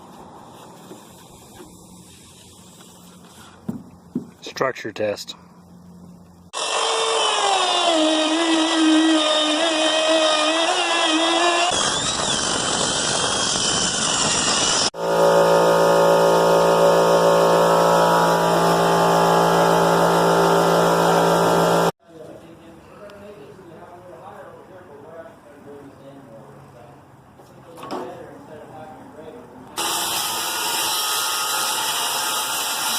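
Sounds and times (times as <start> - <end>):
electric power tool motor whining: 6.5 - 21.9.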